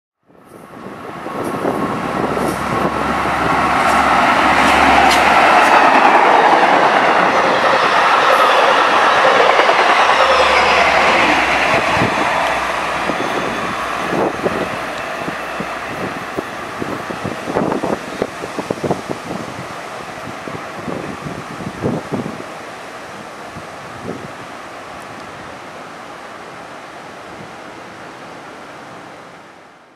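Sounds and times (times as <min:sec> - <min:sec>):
train passing at speed: 0:00.3 - 0:29.9
wheels clacking over rail joints: 0:01.4 - 0:18.8.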